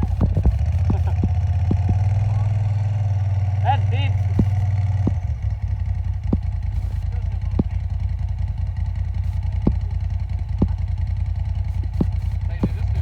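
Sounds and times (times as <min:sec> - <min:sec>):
sharp knocks: 0:00.0 - 0:02.6, 0:04.1 - 0:05.4, 0:06.2 - 0:08.0, 0:09.1 - 0:13.0
vehicle engine running low: 0:00.0 - 0:13.0.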